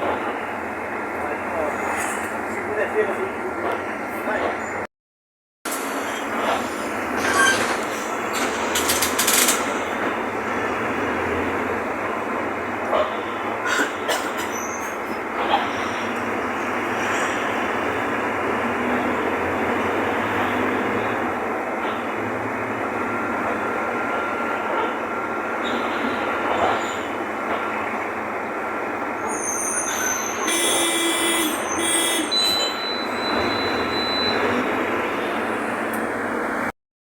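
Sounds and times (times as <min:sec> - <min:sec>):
bus engine running: 0:00.0 - 0:04.8, 0:05.7 - 0:29.2, 0:30.5 - 0:36.7
high squeaks and rattles: 0:07.2 - 0:09.8.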